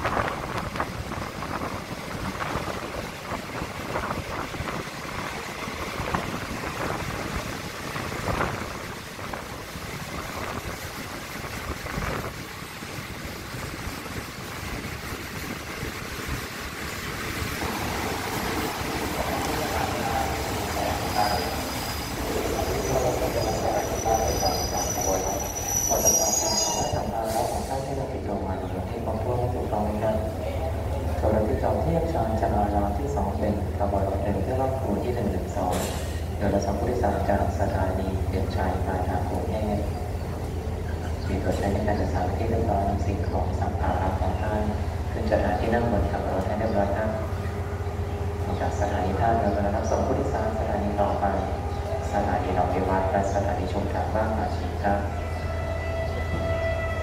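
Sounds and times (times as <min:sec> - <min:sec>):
train running over rails: 0:00.0 - 0:57.0
high brake squeals: 0:21.0 - 0:27.8.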